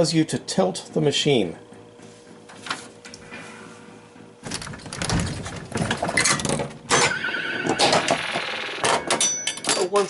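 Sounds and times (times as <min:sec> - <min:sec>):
held electronic tone: 0:06.9 - 0:08.8.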